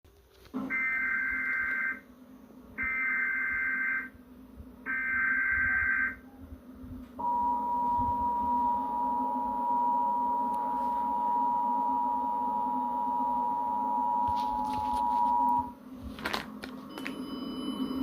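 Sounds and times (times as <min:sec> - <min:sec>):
two-tone attention signal: 0:07.2 - 0:15.7.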